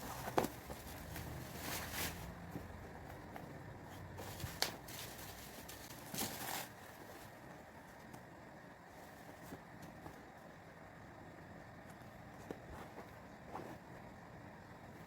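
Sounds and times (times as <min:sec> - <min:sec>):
paper or plastic rustling: 0:00.0 - 0:02.6, 0:04.2 - 0:07.4.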